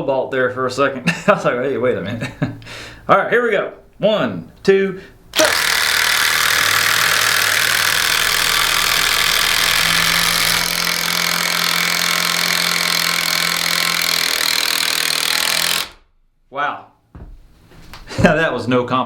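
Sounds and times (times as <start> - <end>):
impact drivers rattling: 5.4 - 16.0.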